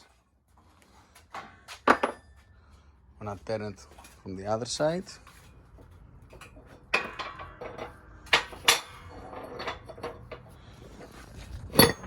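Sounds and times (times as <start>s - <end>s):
metal tools clinking: 11.6s - 12.0s.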